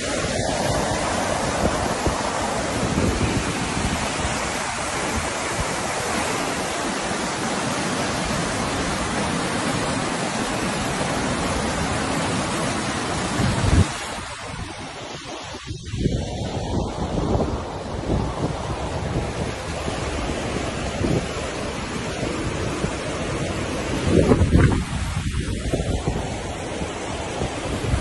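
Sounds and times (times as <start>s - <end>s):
torrential rain pouring: 0.0s - 28.0s.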